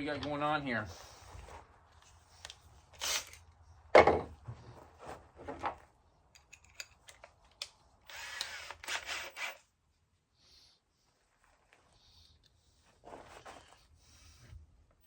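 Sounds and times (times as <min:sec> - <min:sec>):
cordless drill driving screw: 0:03.0 - 0:03.4, 0:08.1 - 0:09.6
wood and hardware clattering: 0:04.0 - 0:04.7.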